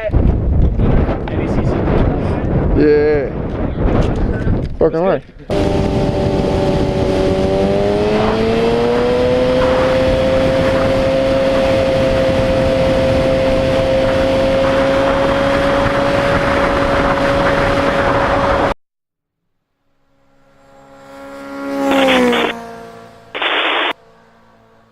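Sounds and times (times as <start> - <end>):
wind noise: 0.0 - 18.7
motorcycle engine running: 5.5 - 17.5, 21.8 - 22.6.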